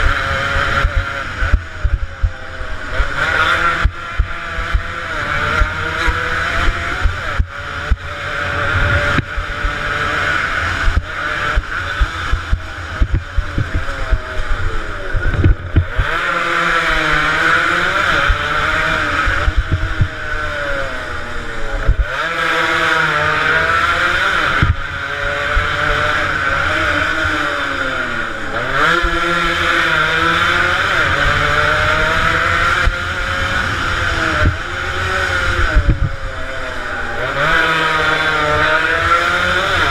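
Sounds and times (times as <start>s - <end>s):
two-stroke motorcycle engines revving: 0.0s - 39.9s.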